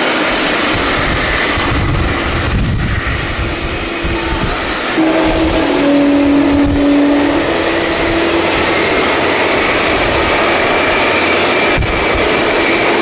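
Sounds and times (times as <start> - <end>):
jet engines rushing: 0.0 - 13.0
thin high whine: 3.2 - 13.0.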